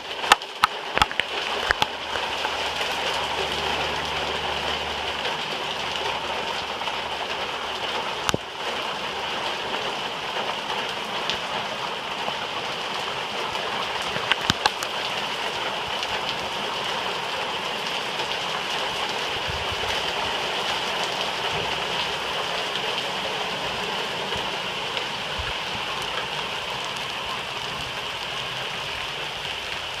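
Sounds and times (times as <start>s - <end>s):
heavy rain splashing: 0.0s - 30.0s.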